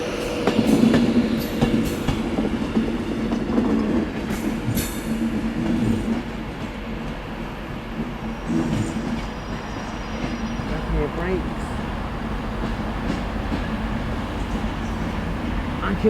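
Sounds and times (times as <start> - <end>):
train wheel squeals: 0.0 - 3.5, 8.2 - 10.8
train running hum: 0.0 - 16.0
wheels clicking over rail joints: 8.0 - 16.0.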